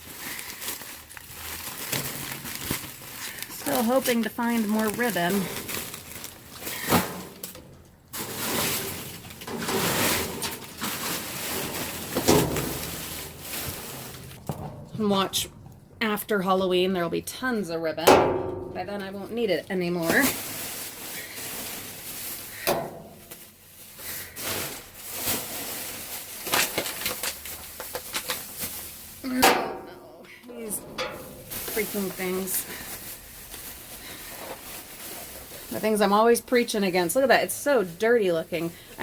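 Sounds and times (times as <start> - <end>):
trash rustling and shifting: 0.0 - 39.0
knock in dumpster: 12.2 - 13.2, 14.4 - 15.9, 18.0 - 18.9.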